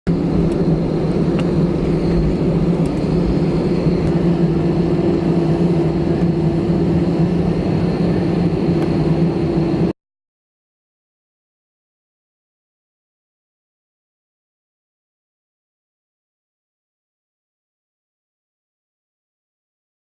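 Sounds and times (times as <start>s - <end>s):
vehicle droning under way: 0.1s - 9.9s.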